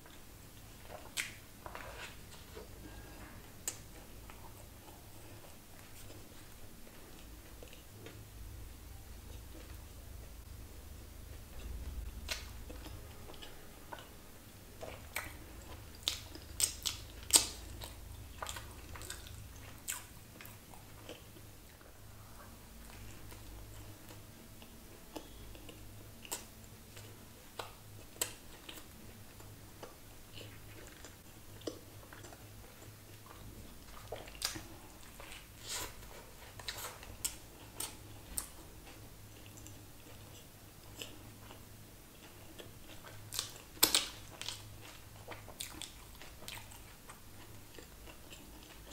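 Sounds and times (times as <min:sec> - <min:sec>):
chewing crispy burger: 0:11.3 - 0:14.1, 0:14.8 - 0:21.9, 0:22.8 - 0:48.9.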